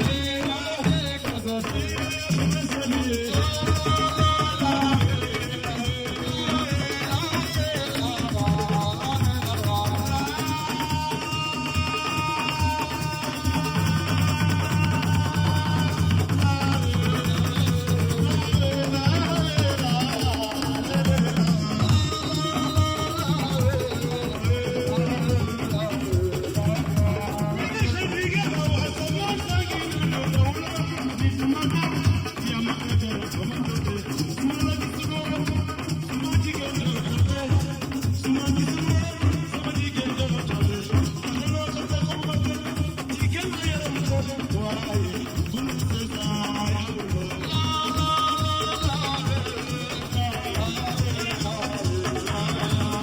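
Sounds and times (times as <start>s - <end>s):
drums and percussion beat: 0.0s - 53.0s
live band playing: 0.0s - 53.0s
person singing: 0.0s - 53.0s.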